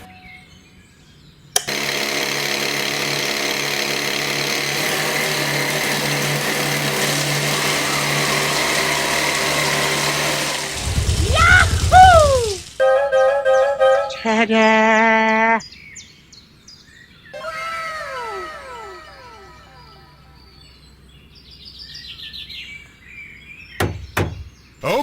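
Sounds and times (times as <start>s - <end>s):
small motor humming: 1.6s - 12.8s.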